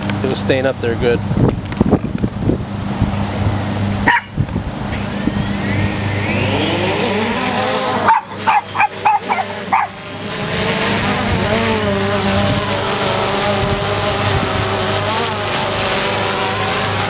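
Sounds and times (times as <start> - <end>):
drone propellers whirring: 0.0 - 17.0
dog barking: 4.1 - 4.4, 8.1 - 9.9.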